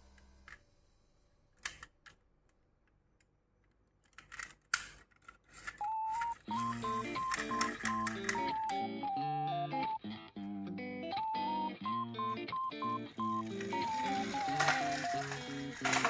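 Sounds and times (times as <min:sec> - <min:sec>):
background music: 0:05.9 - 0:16.0
sharp clicks and taps: 0:07.1 - 0:08.8.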